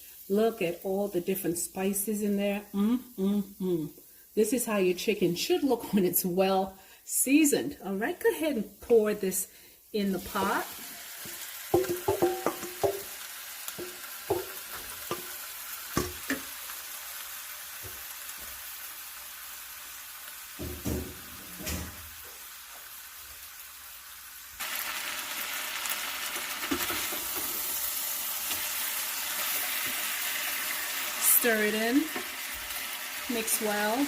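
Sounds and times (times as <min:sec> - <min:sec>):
chicken sizzling in a pot: 0:00.0 - 0:06.4, 0:08.4 - 0:34.0
spoon knocking and scraping a pot: 0:11.2 - 0:13.1, 0:13.8 - 0:15.3, 0:16.0 - 0:16.5.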